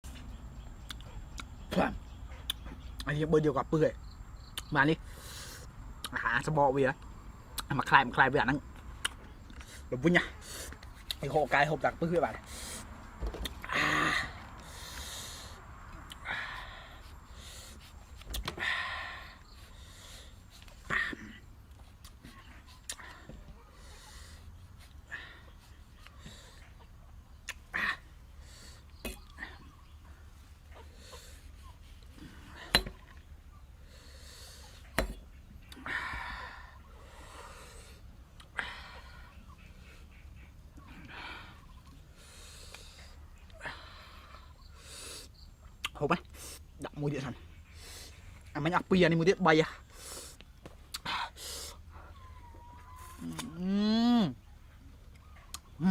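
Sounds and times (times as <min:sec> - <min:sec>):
clicking mouth smacks: 0:27.4 - 0:27.6, 0:53.2 - 0:53.6, 0:55.5 - 0:55.7
breathy hissing intakes of air: 0:44.2 - 0:45.4, 0:51.2 - 0:51.9.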